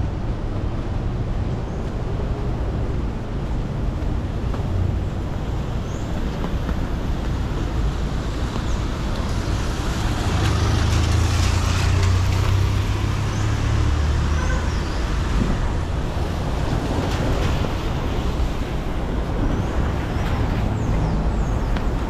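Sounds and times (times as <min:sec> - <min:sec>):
tyres hissing on wet road: 0:05.4 - 0:22.0.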